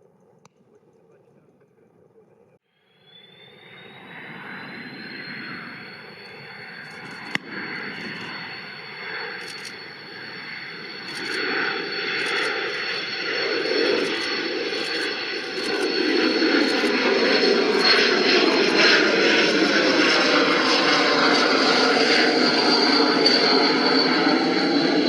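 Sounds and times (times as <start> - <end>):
jet engines whining and roaring: 0.3 - 25.0
sharp click: 9.4 - 9.8, 11.1 - 11.4.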